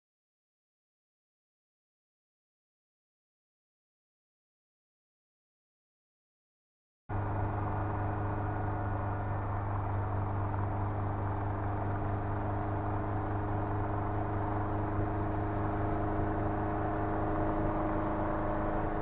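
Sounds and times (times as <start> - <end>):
helicopter engine and rotors: 7.1 - 19.0.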